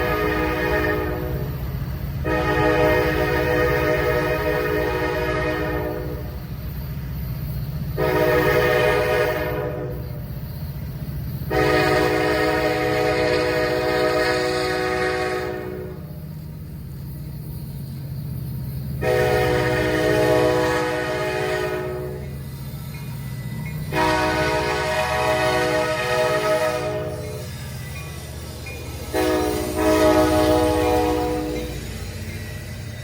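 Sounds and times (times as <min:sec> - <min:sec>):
locomotive air horn blasts: 0:00.0 - 0:01.6, 0:02.2 - 0:06.4, 0:08.0 - 0:10.1, 0:11.5 - 0:16.1, 0:19.0 - 0:22.3, 0:23.8 - 0:27.5, 0:28.9 - 0:31.8
rumble of passing train: 0:00.0 - 0:33.0.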